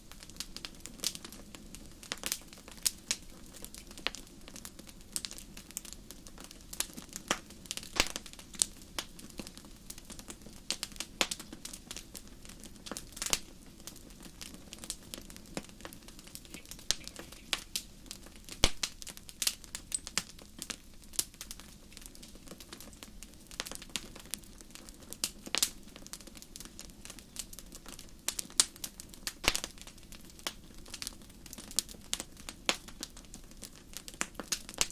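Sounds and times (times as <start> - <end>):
low hiss of flame: 0.0 - 33.1
wood fire crackling and popping: 0.0 - 34.9.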